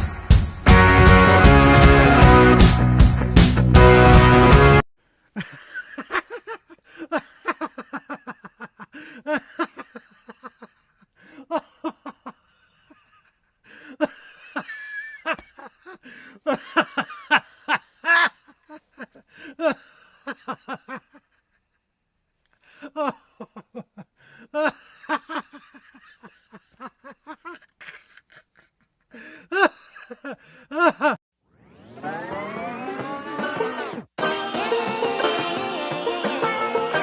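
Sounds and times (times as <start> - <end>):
person laughing breathily: 5.4 - 21.6, 22.6 - 31.2.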